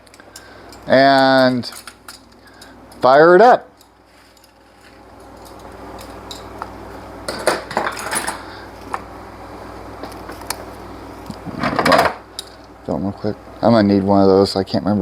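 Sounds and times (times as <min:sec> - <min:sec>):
metal tools clinking: 0:00.0 - 0:03.1, 0:03.7 - 0:06.6, 0:07.3 - 0:08.4.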